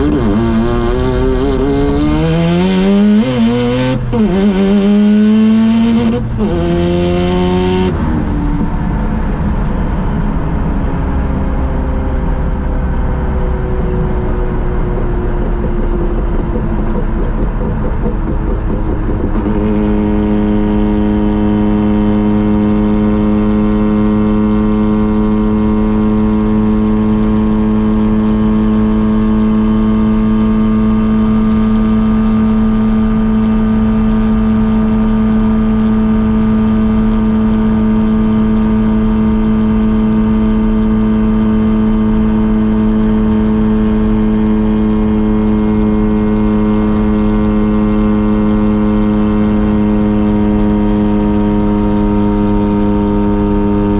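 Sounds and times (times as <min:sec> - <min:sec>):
rotary car engine revving: 0:00.0 - 0:11.6, 0:12.2 - 0:53.9.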